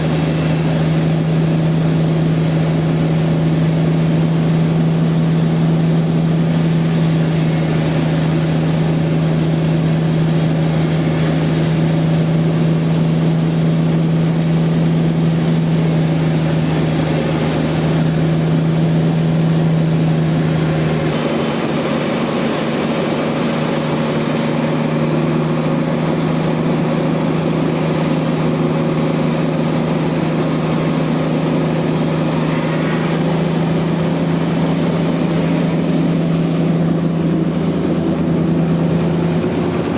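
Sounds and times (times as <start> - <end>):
sawmill machinery drone: 0.0 - 39.9
high hiss: 15.3 - 38.8.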